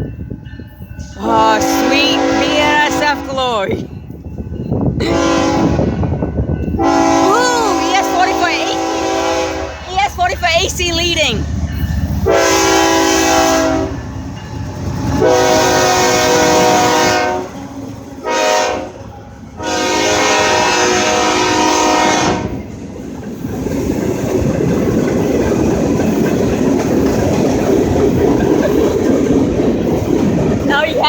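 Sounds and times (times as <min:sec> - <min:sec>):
freight train rumbling past: 0:00.0 - 0:31.0
train horn blasts: 0:01.2 - 0:03.6, 0:05.0 - 0:09.9, 0:12.2 - 0:14.0, 0:15.1 - 0:22.6
wheels clickety-clack: 0:22.5 - 0:31.0.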